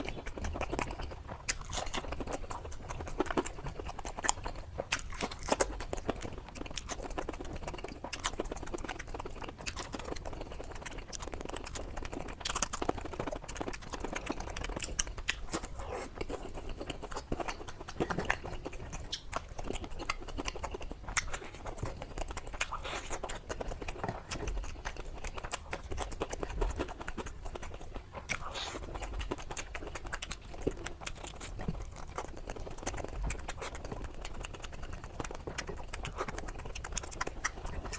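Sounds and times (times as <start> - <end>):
chewing crunchy fried food: 0.0 - 37.9.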